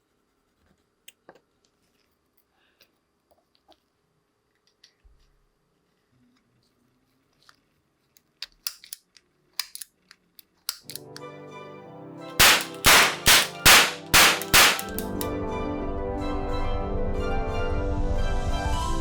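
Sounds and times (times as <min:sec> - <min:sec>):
metal clicks of pistol loading: 0:08.4 - 0:11.2, 0:12.4 - 0:15.3
starter pistol shots: 0:12.4 - 0:15.3.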